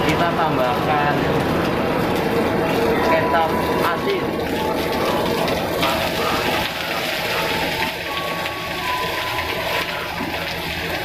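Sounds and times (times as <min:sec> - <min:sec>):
greens sizzling in a wok: 0:02.7 - 0:11.0.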